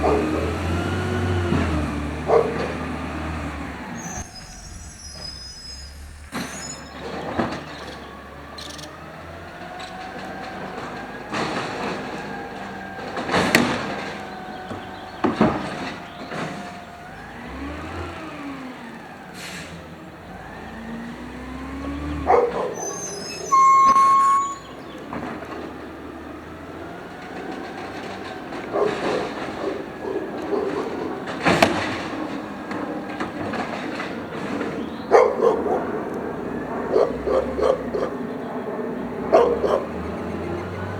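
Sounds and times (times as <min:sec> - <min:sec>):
carts banging against hopper: 0:00.0 - 0:18.2, 0:19.8 - 0:38.3
hydraulics whining: 0:00.0 - 0:40.9
loud beep: 0:04.2 - 0:07.0, 0:23.1 - 0:24.8.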